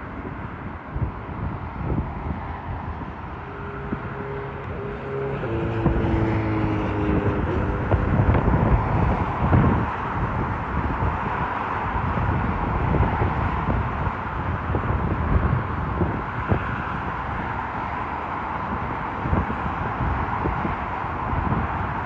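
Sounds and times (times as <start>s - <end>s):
distant traffic and aircraft rumble: 0.0s - 22.0s
wind buffeting microphone: 0.0s - 22.0s
constant hum: 1.0s - 11.2s.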